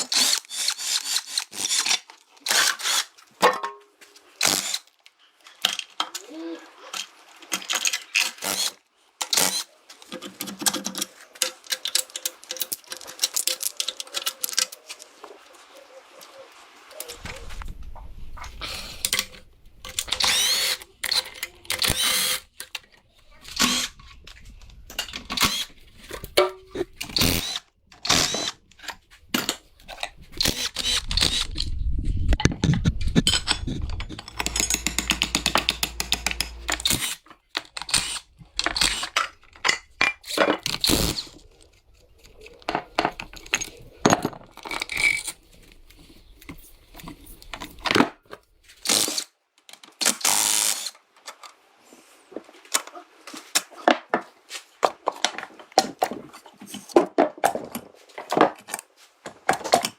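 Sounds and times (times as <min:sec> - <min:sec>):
tools and metal parts clattering: 0:09.2 - 0:15.2, 0:32.5 - 0:45.9
power tool whining: 0:20.1 - 0:21.2, 0:21.8 - 0:22.4, 0:27.2 - 0:28.6, 0:30.4 - 0:31.6, 0:33.6 - 0:37.2
rapid rattling: 0:33.2 - 0:37.0.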